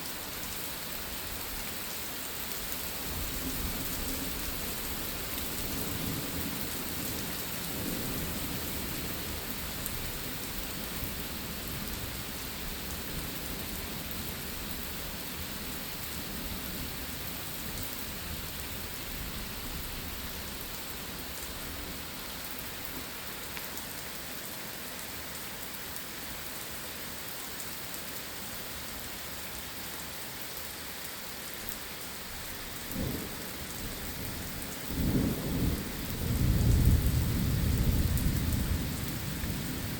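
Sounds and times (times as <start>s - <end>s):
steady rain: 0.0s - 39.9s
rolling thunder: 34.2s - 39.9s.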